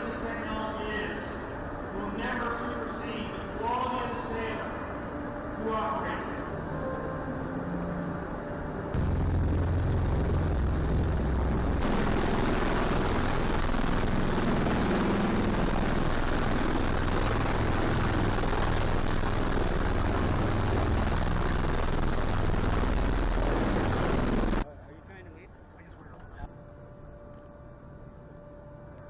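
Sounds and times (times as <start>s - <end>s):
aircraft engine noise: 9.0s - 24.6s.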